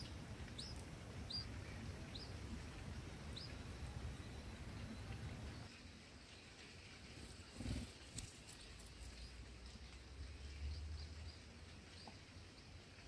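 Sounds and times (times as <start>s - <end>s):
soft bird chirps: 0.0s - 5.8s.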